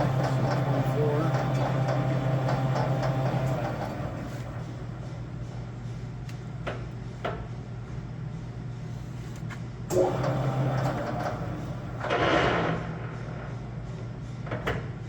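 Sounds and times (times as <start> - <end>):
grinder humming: 0.0 - 4.8.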